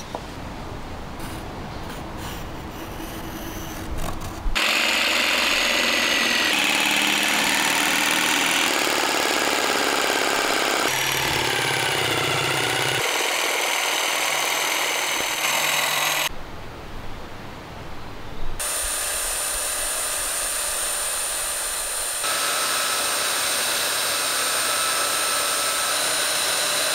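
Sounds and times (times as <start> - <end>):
power tool motor whine: 4.6 - 16.3, 18.6 - 26.9.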